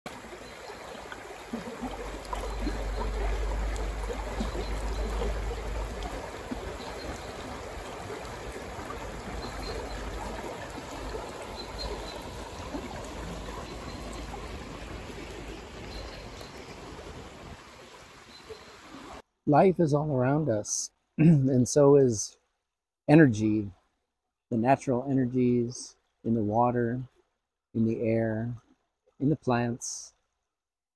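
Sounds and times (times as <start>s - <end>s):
stream water rushing: 0.1s - 19.2s.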